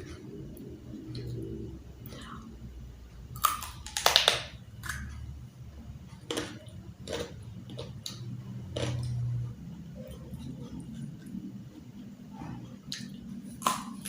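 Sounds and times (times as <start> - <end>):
crunchy bites: 3.4 - 5.1, 12.9 - 14.0
wet chewing: 6.1 - 14.0.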